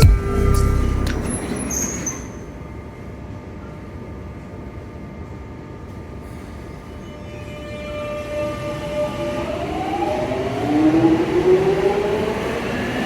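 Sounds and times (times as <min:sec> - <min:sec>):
electric train rumbling on rails: 0:00.0 - 0:13.0
brief high squeal: 0:01.2 - 0:02.5.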